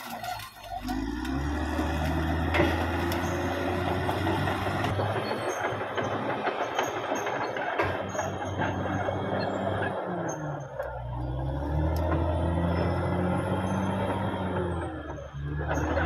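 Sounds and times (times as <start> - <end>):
bulldozer diesel engine under load: 0.0 - 16.0
steel tracks clattering: 1.7 - 11.2.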